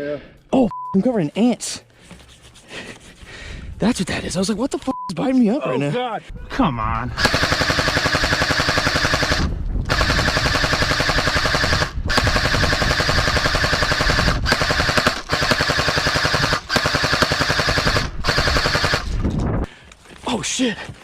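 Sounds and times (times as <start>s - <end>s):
automatic gunfire bursts: 7.2s - 19.1s.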